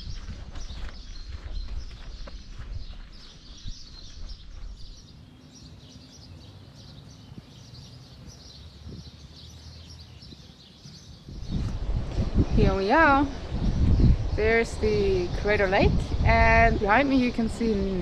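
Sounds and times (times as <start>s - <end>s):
small birds chirping and singing: 0.0s - 18.0s
low rumble: 11.3s - 18.0s.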